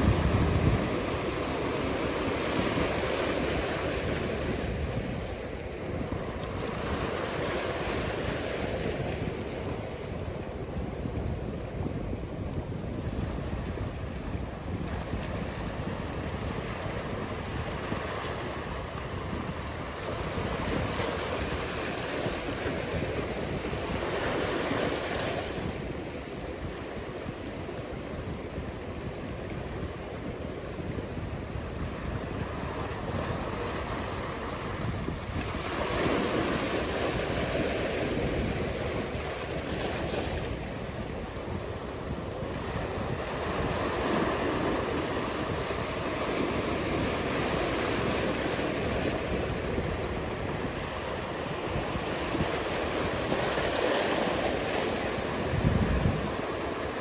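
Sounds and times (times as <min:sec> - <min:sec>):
breaking waves: 0:00.0 - 0:10.8, 0:31.0 - 0:57.0.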